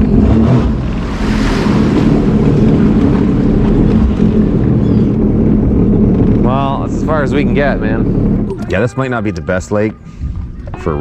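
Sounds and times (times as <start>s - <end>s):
wind noise on microphone: 0.0s - 6.8s, 9.8s - 11.0s
watercraft engine running: 0.0s - 11.0s.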